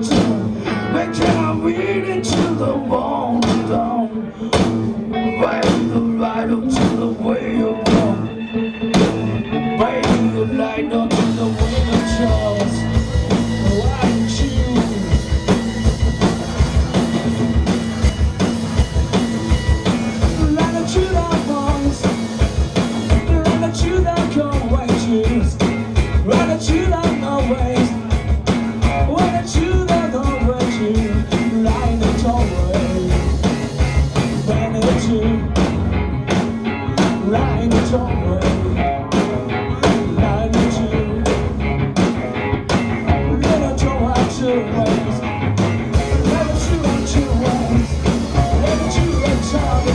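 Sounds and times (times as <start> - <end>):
drum kit: 0.0 - 5.0, 6.7 - 7.2, 7.8 - 8.3, 8.9 - 10.5, 11.1 - 49.9
bass guitars: 0.0 - 49.9
electric guitars: 0.0 - 49.9.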